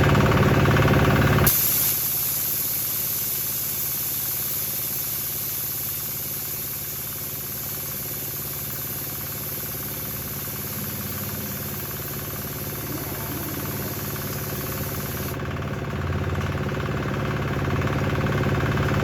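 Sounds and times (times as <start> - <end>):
engine idling: 0.0 - 19.0
steady hiss: 1.5 - 15.4.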